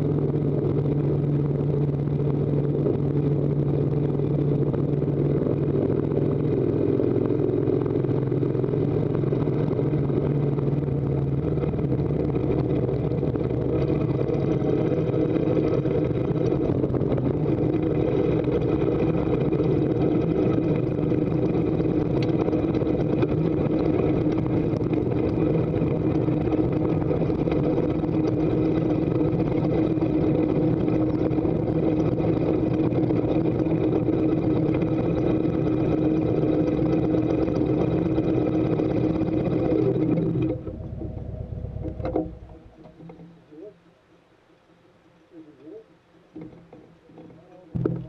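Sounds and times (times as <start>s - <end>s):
motorcycle engine running: 0.0s - 43.7s, 46.4s - 48.0s.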